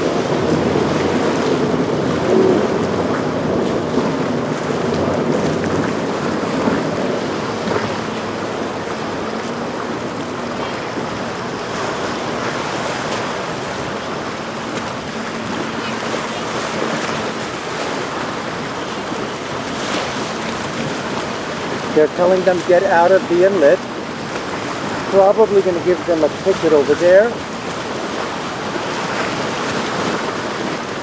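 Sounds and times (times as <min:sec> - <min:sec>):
wind noise on microphone: 0:00.0 - 0:22.3
faint boat engine hum: 0:00.0 - 0:31.0
ocean waves: 0:00.0 - 0:31.0.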